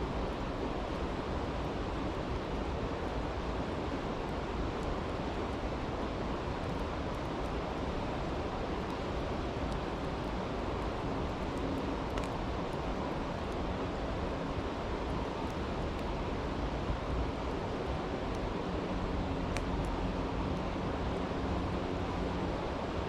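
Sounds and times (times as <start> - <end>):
campfire crackling: 1.0 - 23.0.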